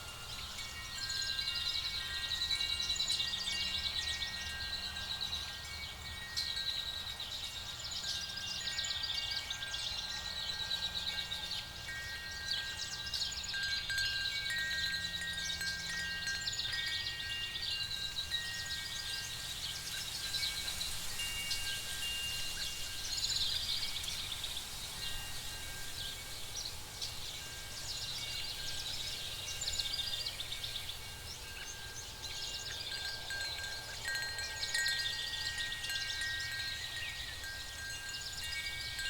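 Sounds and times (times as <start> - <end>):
wind chimes ringing: 0.0 - 39.0.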